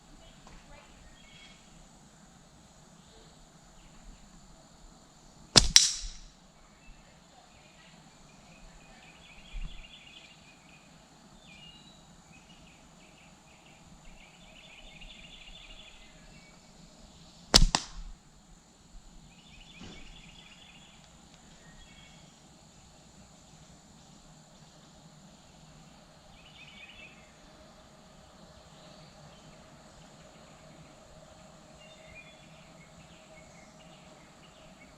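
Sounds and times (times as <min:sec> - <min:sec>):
slingshot crack: 0:05.6 - 0:06.3, 0:17.6 - 0:18.2.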